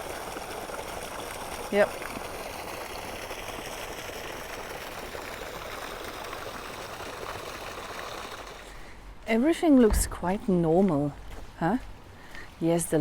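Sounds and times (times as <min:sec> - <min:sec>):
rushing running water: 0:00.0 - 0:08.9.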